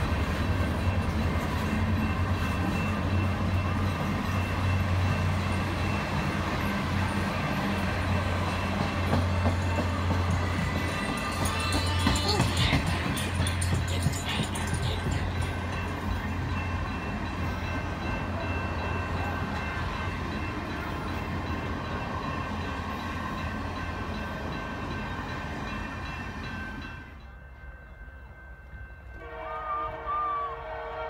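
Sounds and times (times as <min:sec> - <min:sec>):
train cars rumbling over rails: 0:00.0 - 0:31.0
locomotive horn chord: 0:29.1 - 0:31.0.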